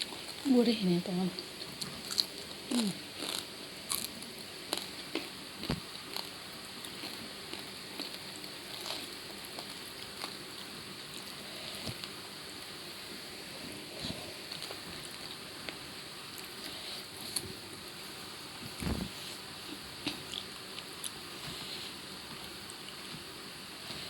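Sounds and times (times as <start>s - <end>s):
person crunching food: 1.6s - 12.1s.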